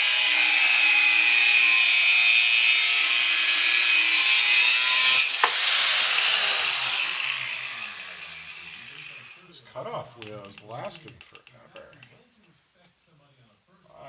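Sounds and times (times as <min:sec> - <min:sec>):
grinder cutting steel: 0:00.0 - 0:09.5
grinder wheel winding down: 0:03.0 - 0:09.4.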